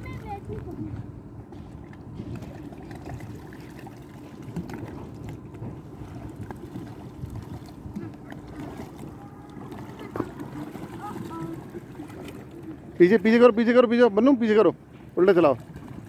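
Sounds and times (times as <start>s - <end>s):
water rumbling: 0.0s - 16.0s
wind on microphone: 4.6s - 11.8s.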